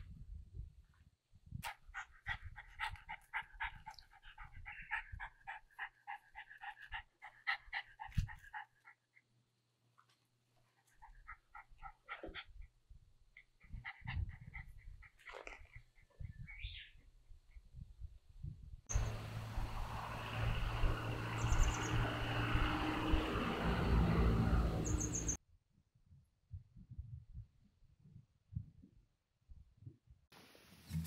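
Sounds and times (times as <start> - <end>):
dog panting: 1.6 - 9.3, 10.7 - 16.5.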